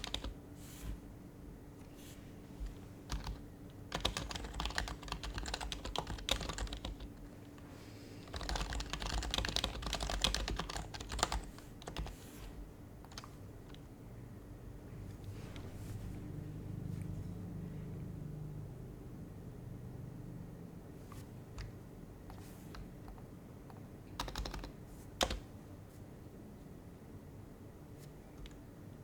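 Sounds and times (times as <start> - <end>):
quiet keyboard typing: 0.0 - 1.0, 2.6 - 13.9, 21.0 - 25.6, 28.2 - 29.0.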